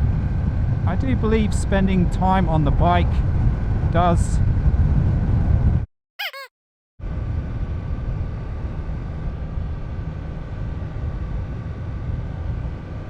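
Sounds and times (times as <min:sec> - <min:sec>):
wind rumble on microphone: 0:00.0 - 0:05.8.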